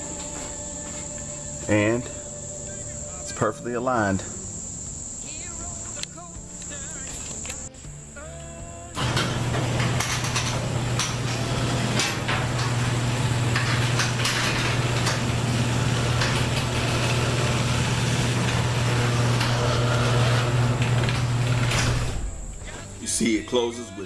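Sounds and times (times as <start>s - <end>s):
garage door opener motor hum: 9.0s - 22.7s
garage door rattling: 9.0s - 23.0s.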